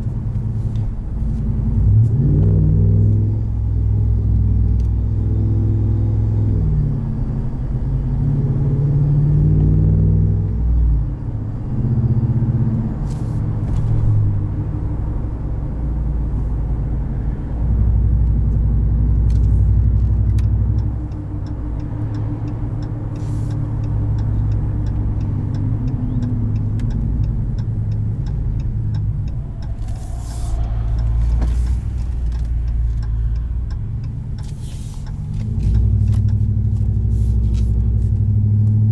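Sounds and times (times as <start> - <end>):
deep truck exhaust rumble: 0.0 - 38.9.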